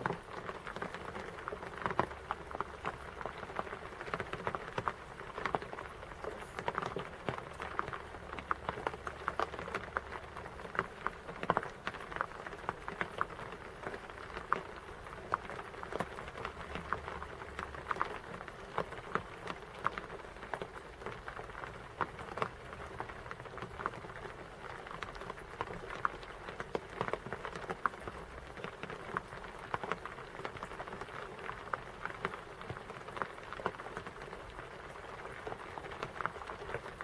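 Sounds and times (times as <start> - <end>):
rain drops pattering on hard surface: 0.0 - 37.0.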